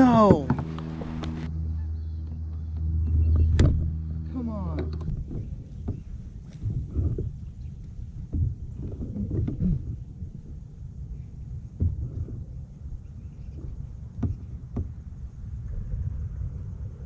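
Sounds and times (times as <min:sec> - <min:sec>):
wind rumbling on microphone: 0:00.0 - 0:17.0
sharp knocks: 0:14.1 - 0:15.0.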